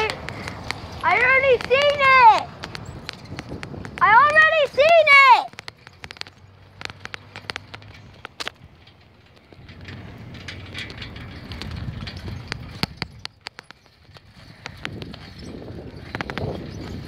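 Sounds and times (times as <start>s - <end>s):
bicycle clicks and rattles: 0.0s - 17.0s
bicycle tyres and wind rumble: 0.0s - 17.0s.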